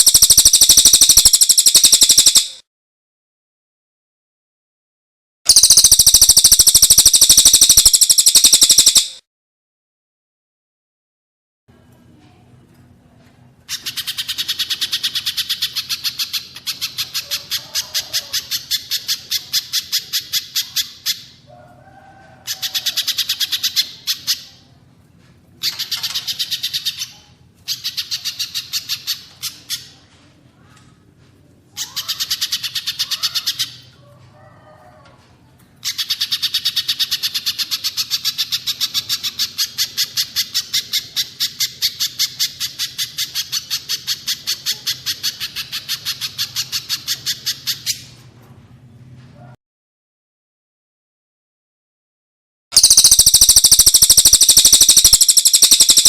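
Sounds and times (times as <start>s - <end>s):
songbird chipping notes: 52.8s - 56.0s.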